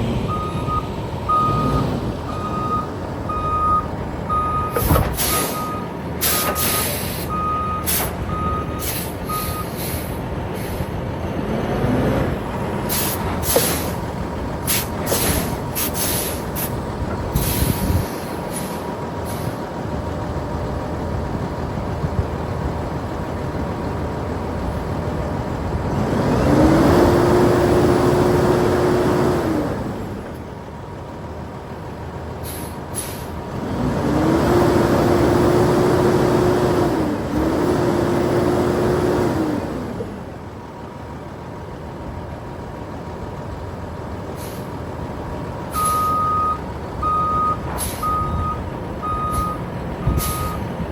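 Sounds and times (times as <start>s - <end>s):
diesel truck engine revving: 0.0s - 50.9s
reversing beeper: 0.3s - 10.0s, 45.7s - 50.6s.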